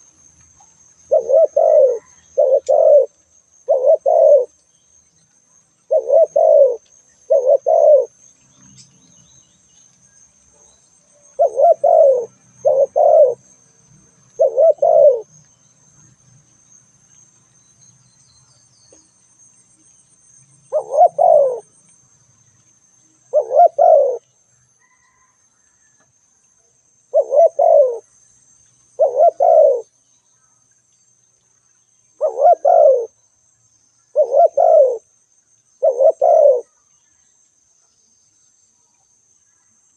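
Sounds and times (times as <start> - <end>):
dove cooing: 1.1 - 4.6, 5.9 - 8.2, 11.3 - 13.5, 14.3 - 15.3, 20.7 - 21.8, 23.3 - 24.2, 24.8 - 25.4, 27.1 - 28.1, 29.0 - 29.9, 32.2 - 33.2, 34.1 - 35.1, 35.8 - 36.8.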